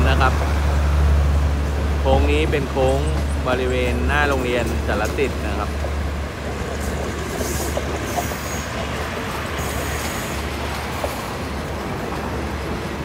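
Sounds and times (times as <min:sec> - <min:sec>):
train rolling rumble: 0:00.0 - 0:13.0
brief wheel squeaks: 0:07.3 - 0:09.0.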